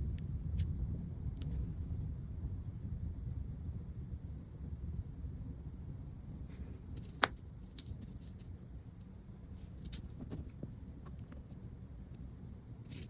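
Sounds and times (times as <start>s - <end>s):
low steady hum: 0.0s - 13.0s
hands handling small parts: 6.4s - 8.5s.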